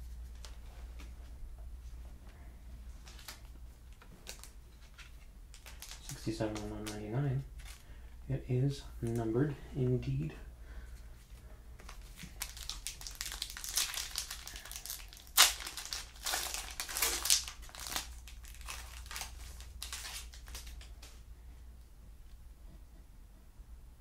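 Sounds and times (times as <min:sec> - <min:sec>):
plastic wrapper crinkling: 0:03.0 - 0:07.9, 0:11.8 - 0:21.2.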